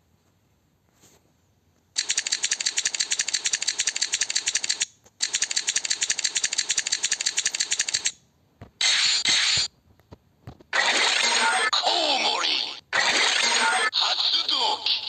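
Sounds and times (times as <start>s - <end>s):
mechanical ratcheting clicks: 2.0s - 8.2s.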